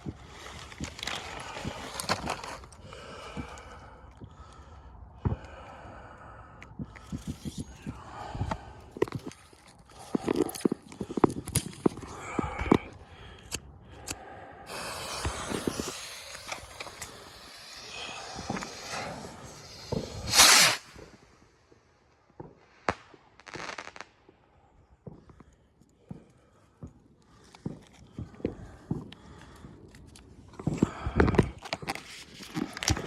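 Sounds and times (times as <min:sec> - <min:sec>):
faint cracks: 0:06.5 - 0:21.4
firework hissing: 0:14.7 - 0:21.4.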